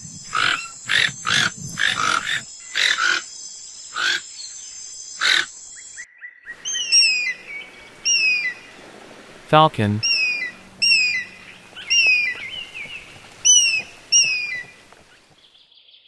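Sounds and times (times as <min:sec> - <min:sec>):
bird of prey high calls: 0:06.5 - 0:08.9, 0:10.0 - 0:15.2
toucan harsh calls: 0:06.5 - 0:15.4.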